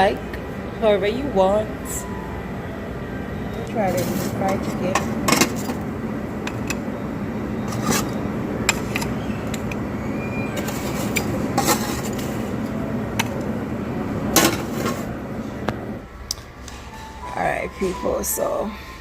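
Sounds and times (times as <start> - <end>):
restaurant hubbub: 0.0 - 19.0
dishes and utensils clinking: 3.9 - 5.8, 7.7 - 9.8, 10.6 - 12.5.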